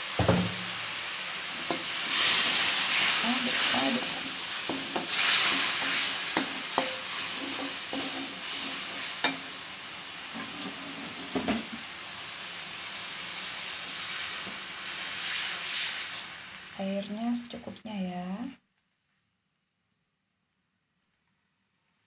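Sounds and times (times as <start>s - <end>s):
paste sizzling in a wok: 0.0s - 17.6s
metal spatula scraping a wok: 1.6s - 9.6s, 10.3s - 11.4s.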